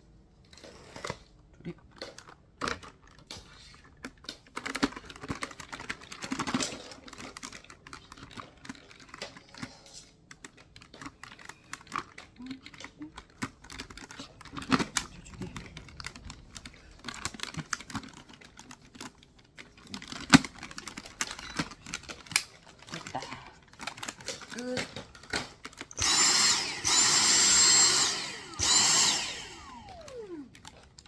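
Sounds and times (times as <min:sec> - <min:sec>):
small plastic clicks and knocks: 0:01.7 - 0:26.0.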